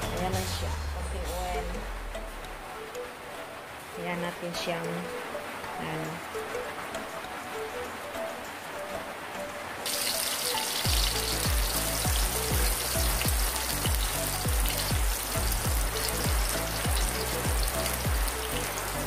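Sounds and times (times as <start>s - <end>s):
background music with bass beat: 0.0s - 2.8s, 10.9s - 19.0s
garlic and onion sizzling in oil: 9.8s - 19.0s.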